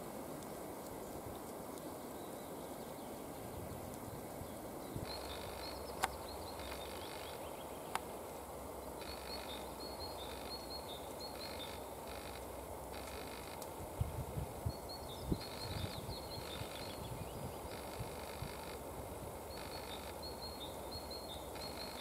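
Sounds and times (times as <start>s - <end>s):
songbird singing: 0.7s - 22.0s
sharp clicks: 5.1s - 7.3s, 11.4s - 13.8s.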